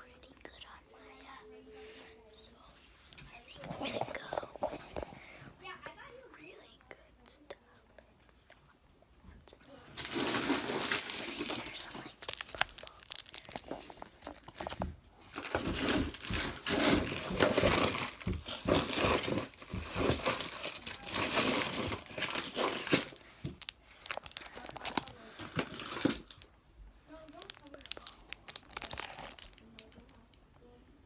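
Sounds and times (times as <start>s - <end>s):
plastic packaging crinkling: 9.9s - 26.5s, 27.1s - 30.3s.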